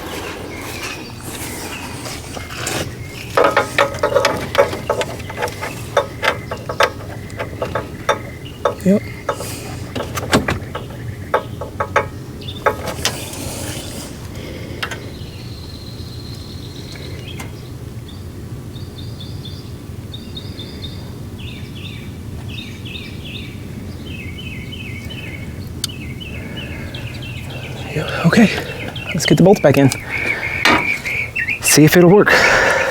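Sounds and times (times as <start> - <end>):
small bird chirping: 0.0 - 32.9
steady low hum: 0.0 - 32.9
sharp clicks and knocks: 0.7 - 15.2.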